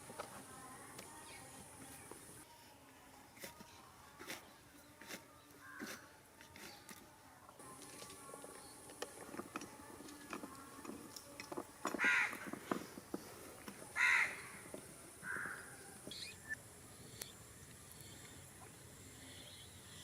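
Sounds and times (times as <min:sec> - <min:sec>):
crow cawing: 0:12.0 - 0:12.4, 0:14.0 - 0:14.6, 0:15.2 - 0:15.7.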